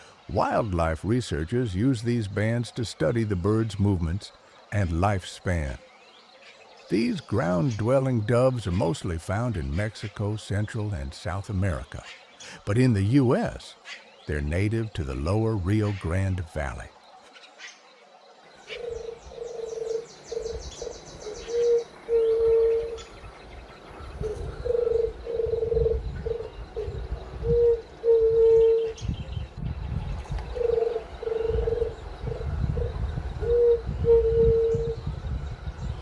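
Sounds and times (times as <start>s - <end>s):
dove cooing: 18.6s - 29.6s, 30.2s - 35.1s.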